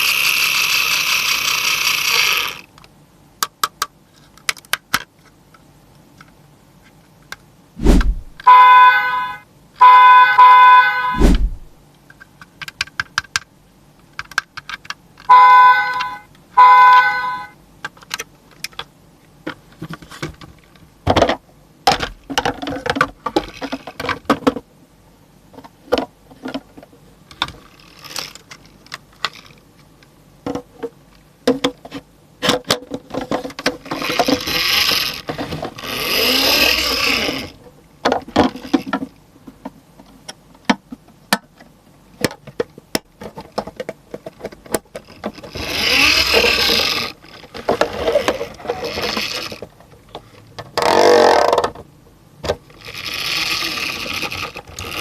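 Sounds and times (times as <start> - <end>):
toy trucks clicking and rattling: 0.0 - 5.3, 14.1 - 16.2, 20.6 - 24.6, 25.6 - 30.0, 31.1 - 39.2, 42.3 - 51.8, 52.6 - 55.0
scraping or rustling: 7.8 - 8.4, 11.1 - 11.8
short electronic toy tones: 8.4 - 11.2, 15.3 - 17.6.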